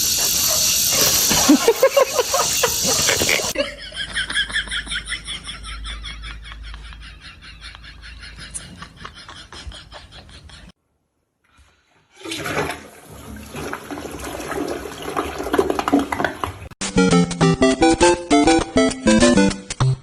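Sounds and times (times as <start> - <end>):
music with bouncy beat: 16.8 - 20.0.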